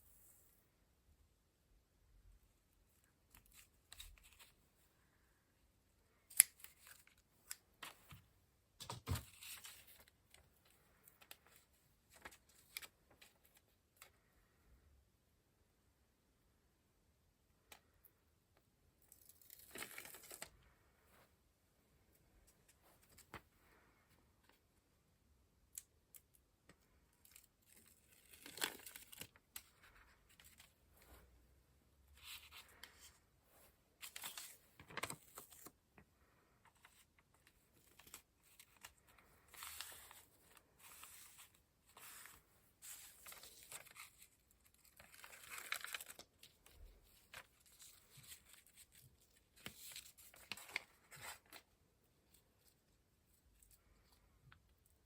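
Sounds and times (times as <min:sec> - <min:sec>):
paper crinkling and tearing: 0:34.0 - 0:35.7, 0:37.7 - 0:51.6.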